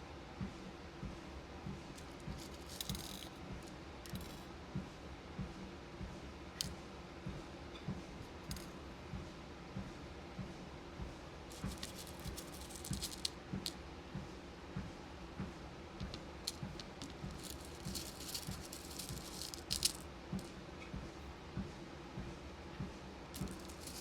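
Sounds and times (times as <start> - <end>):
beads rattling and clicking: 2.0 - 4.4, 8.3 - 8.7, 11.5 - 13.8, 16.0 - 20.5, 23.4 - 24.0.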